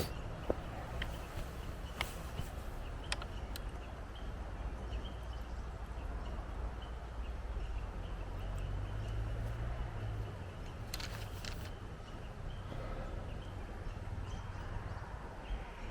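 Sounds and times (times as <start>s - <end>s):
light clicks: 0.0s - 3.7s.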